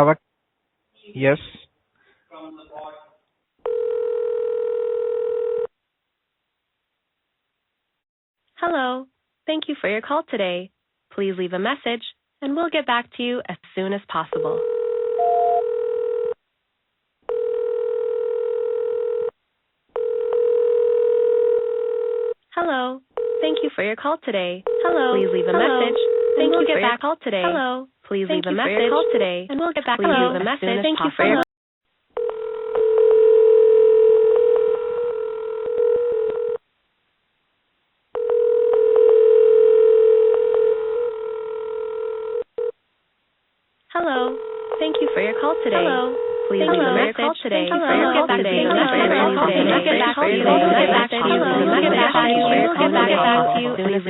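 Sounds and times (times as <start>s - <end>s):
telephone call tone: 3.6s - 5.7s, 14.4s - 16.4s, 17.3s - 19.4s, 20.0s - 22.4s, 23.2s - 23.6s, 24.7s - 26.7s, 32.2s - 36.6s, 38.2s - 42.8s, 44.3s - 47.2s, 47.8s - 53.8s.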